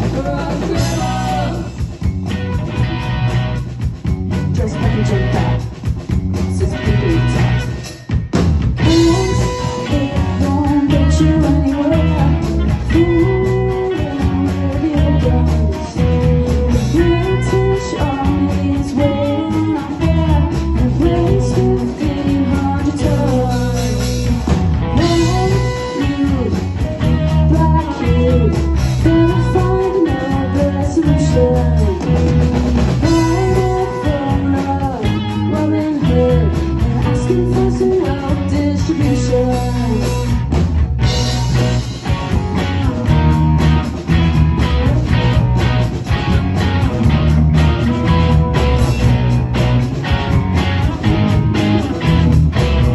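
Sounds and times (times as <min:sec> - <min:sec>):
person singing: 0:00.0 - 0:01.9, 0:04.5 - 0:05.7, 0:06.5 - 0:07.8, 0:08.8 - 0:40.4
rock band playing: 0:00.0 - 0:52.9.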